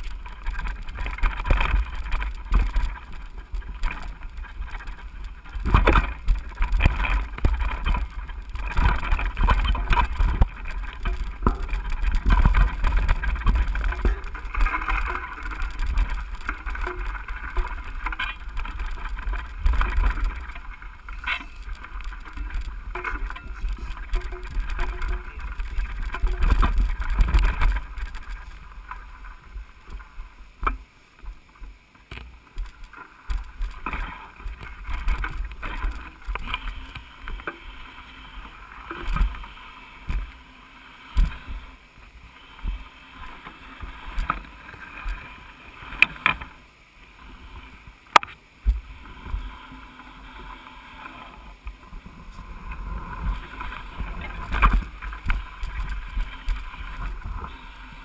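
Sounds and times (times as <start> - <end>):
bike clicks and rattles: 0.0 - 31.4, 32.0 - 40.4, 52.7 - 57.7
wind rumbling on microphone: 0.0 - 58.0.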